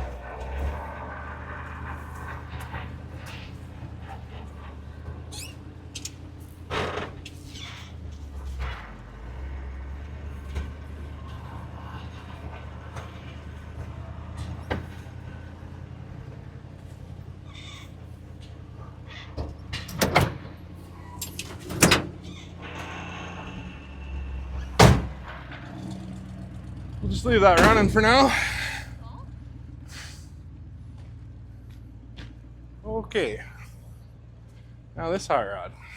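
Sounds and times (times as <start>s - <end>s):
truck engine idling: 0.0s - 35.9s
sharp knocks and clunks: 27.6s - 28.1s.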